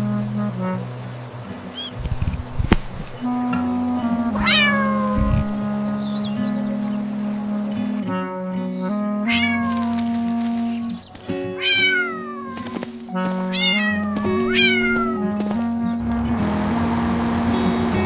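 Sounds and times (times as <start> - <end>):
background music with held notes: 0.0 - 18.0
cat meowing: 4.4 - 5.4, 9.2 - 9.9, 11.5 - 12.9, 13.5 - 15.8.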